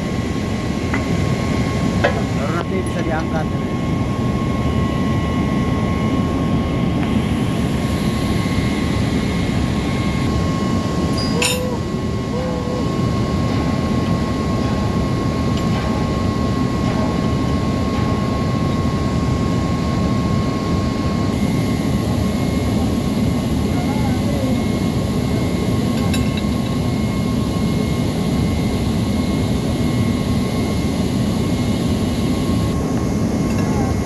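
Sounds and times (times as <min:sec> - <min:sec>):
machinery drone: 0:00.0 - 0:34.0
high whine: 0:06.8 - 0:34.0.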